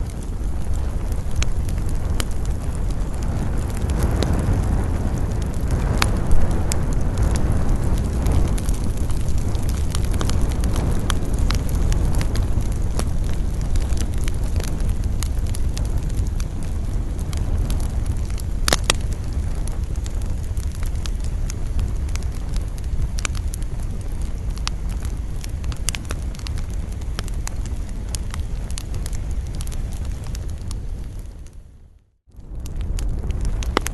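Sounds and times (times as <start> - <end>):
wind rushing: 0.0 - 31.3
campfire crackling and popping: 0.0 - 33.9.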